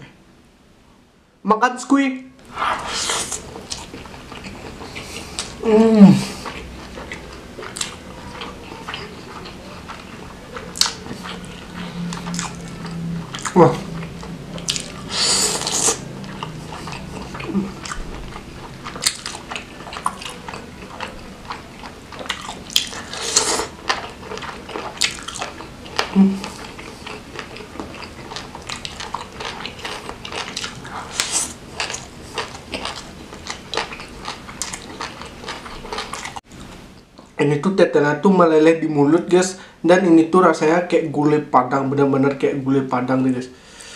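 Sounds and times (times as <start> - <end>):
chewing and wet mouth smacks: 6.4 - 37.3.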